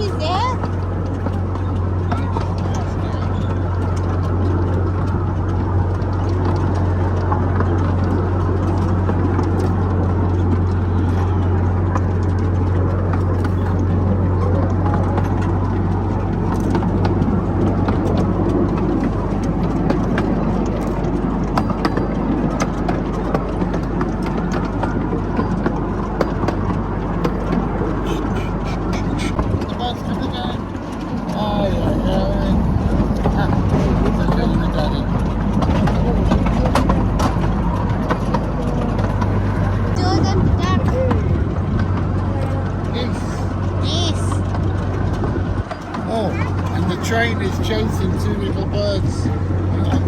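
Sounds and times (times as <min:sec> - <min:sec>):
low engine drone: 0:00.0 - 0:50.0
train wheels clicking and rattling: 0:00.0 - 0:50.0.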